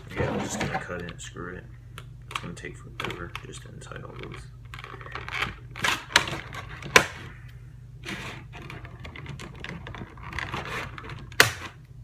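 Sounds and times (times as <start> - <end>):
packaging scraping and rustling: 8.0 - 11.4.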